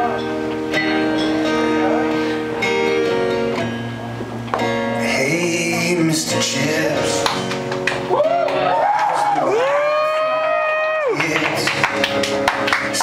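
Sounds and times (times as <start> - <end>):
live rock band playing: 0.0 - 9.4
strummed guitar chords: 0.0 - 13.0
person singing wordlessly: 5.0 - 7.4, 11.0 - 12.0
crowd whooping: 7.9 - 12.1.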